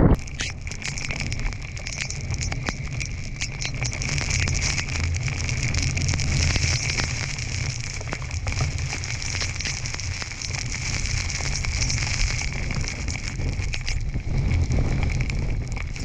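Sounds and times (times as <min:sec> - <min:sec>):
wind buffeting microphone: 0:00.0 - 0:00.8, 0:10.5 - 0:16.0
crackle and patter of snow: 0:00.0 - 0:16.0.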